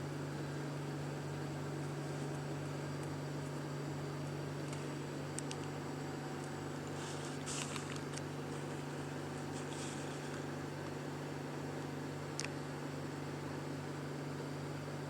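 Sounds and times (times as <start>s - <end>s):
low mechanical hum: 0.0s - 15.0s
faint rustles: 6.8s - 10.5s.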